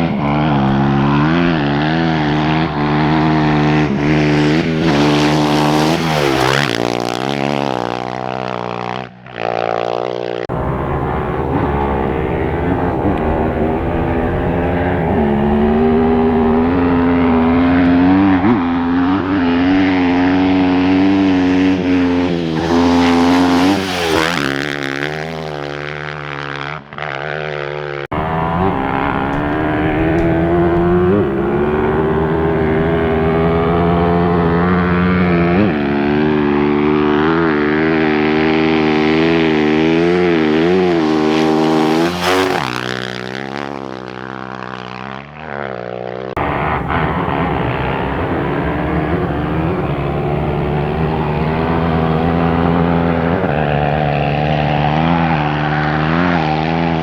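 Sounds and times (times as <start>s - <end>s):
racing motorcycle engines revving: 0.0s - 8.8s, 10.5s - 26.9s, 28.1s - 43.8s, 46.4s - 57.0s.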